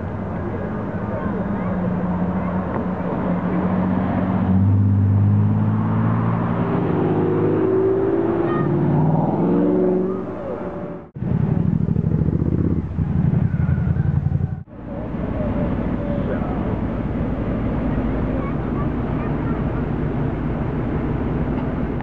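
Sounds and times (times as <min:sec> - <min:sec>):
car engine idling lumpily: 0:00.0 - 0:03.7, 0:10.3 - 0:22.0
car engine accelerating: 0:00.0 - 0:22.0.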